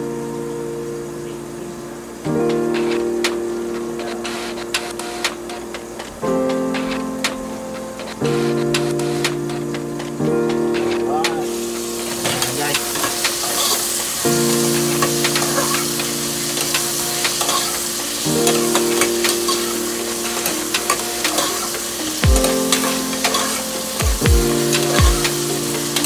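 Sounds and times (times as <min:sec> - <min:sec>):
background music with held chords: 0:00.0 - 0:26.0
vegetables sizzling in a pot: 0:11.4 - 0:26.0.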